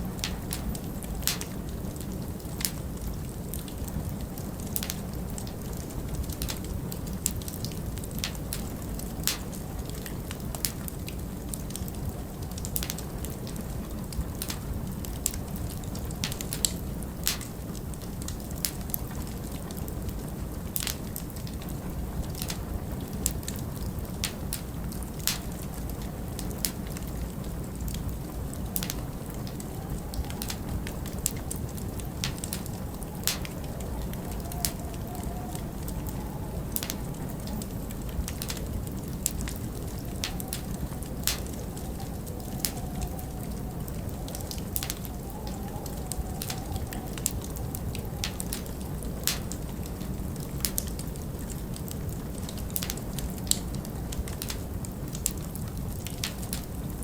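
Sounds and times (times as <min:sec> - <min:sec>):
log fire crackling and popping: 0:00.0 - 0:57.0
storm wind rumbling: 0:00.0 - 0:57.0
faint wind whistle: 0:21.8 - 0:51.3.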